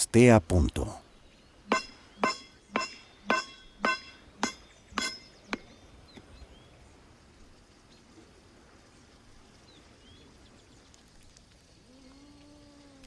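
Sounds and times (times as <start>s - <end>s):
hammer striking metal: 1.7s - 5.3s.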